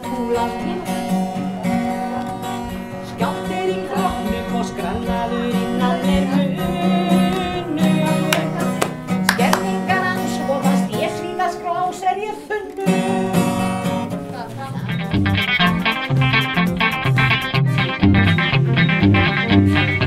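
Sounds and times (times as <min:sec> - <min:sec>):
man singing: 0:00.0 - 0:13.9
acoustic guitar strumming: 0:00.0 - 0:20.0.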